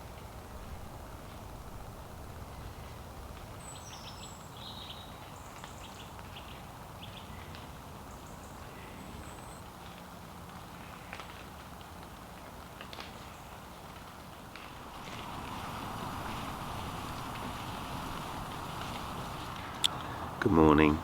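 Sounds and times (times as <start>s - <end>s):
steady low rumble: 0.4s - 3.5s, 14.6s - 20.0s
small birds chirping: 0.6s - 7.5s, 14.6s - 21.0s.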